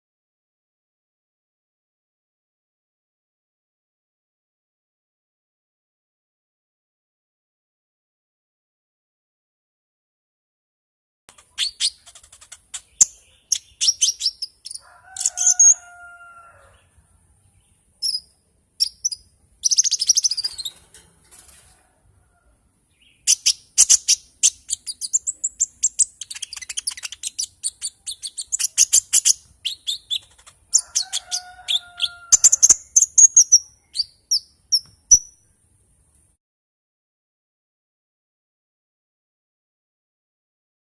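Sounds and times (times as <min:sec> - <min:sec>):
songbird chirps and trills: 0:11.3 - 0:36.2.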